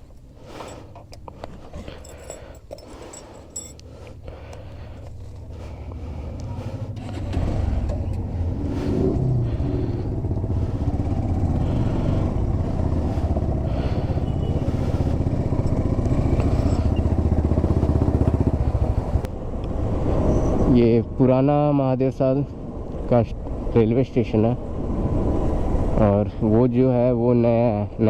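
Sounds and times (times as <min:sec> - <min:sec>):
motorcycle engine running: 0:00.0 - 0:19.3.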